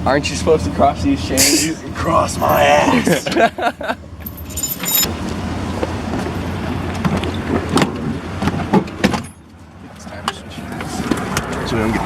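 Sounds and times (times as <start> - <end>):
car engine rumbling: 0.0 - 12.0
sharp clunks and rattles: 6.9 - 9.4.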